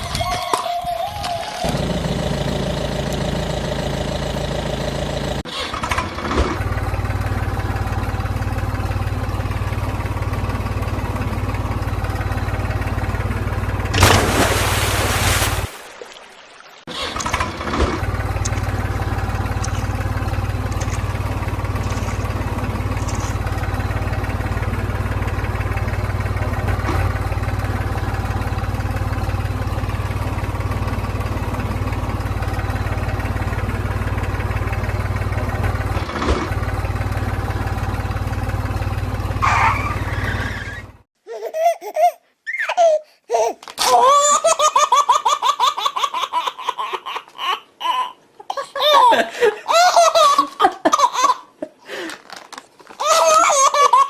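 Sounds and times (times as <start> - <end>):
vehicle engine droning: 1.5 - 15.8, 16.9 - 41.1
child laughing: 41.2 - 51.8, 52.9 - 54.0.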